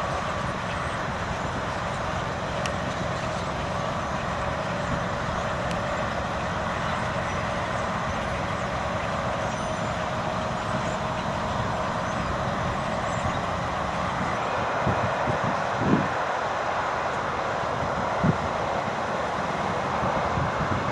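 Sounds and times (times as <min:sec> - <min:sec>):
swallows twittering: 0:00.0 - 0:14.6
city traffic noise: 0:00.0 - 0:20.9.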